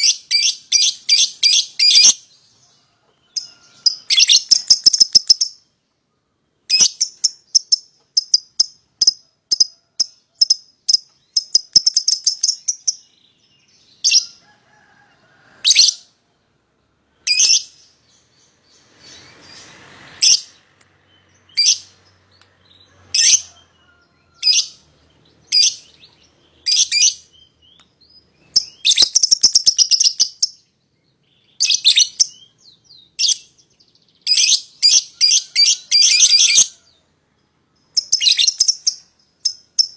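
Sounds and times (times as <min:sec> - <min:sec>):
lovebirds shrill rapid chatter: 0:00.0 - 0:02.3, 0:03.3 - 0:05.6, 0:14.0 - 0:14.4, 0:21.4 - 0:22.0, 0:23.0 - 0:23.8, 0:24.4 - 0:27.6, 0:28.3 - 0:30.6, 0:31.6 - 0:32.6, 0:34.2 - 0:36.9, 0:37.9 - 0:39.9.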